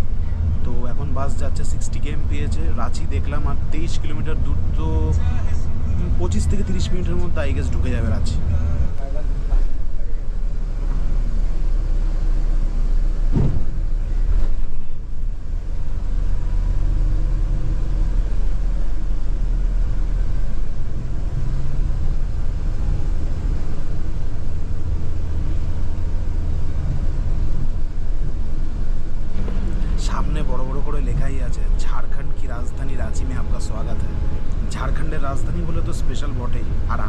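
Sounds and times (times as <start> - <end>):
coach engine and road rumble: 0.0 - 37.0
thumps: 13.3 - 13.8.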